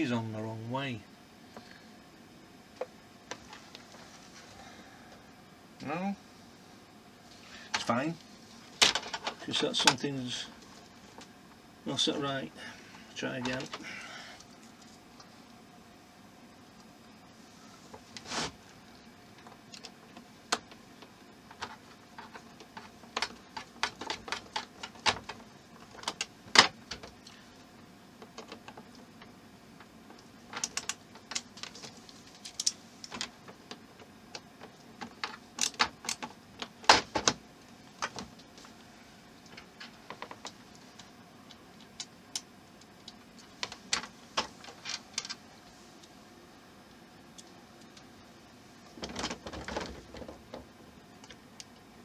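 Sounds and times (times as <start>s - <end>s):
plastic parts clicking and tapping: 8.8s - 10.0s, 19.4s - 27.3s, 28.2s - 37.4s, 38.0s - 38.5s, 49.0s - 51.9s.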